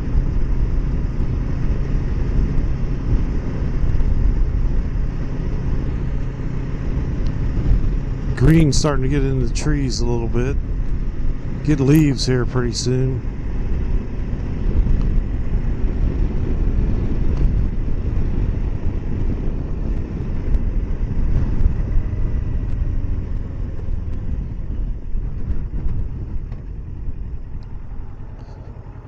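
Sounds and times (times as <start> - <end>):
motorcycle engine riding: 0.0 - 29.0
wind buffeting on microphone: 0.0 - 29.0.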